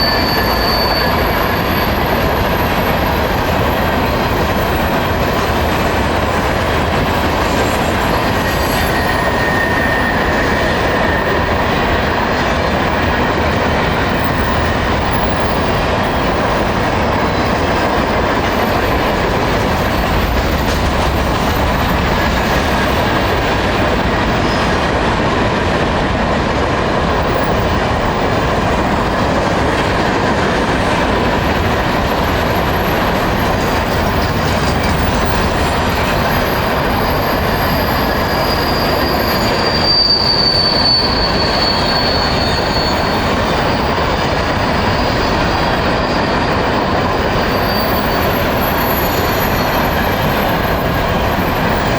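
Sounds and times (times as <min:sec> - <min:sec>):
thin wheel squeal: 0:00.0 - 0:04.7, 0:07.5 - 0:11.7, 0:32.2 - 0:43.7
freight train wheels rumbling: 0:00.0 - 0:51.9.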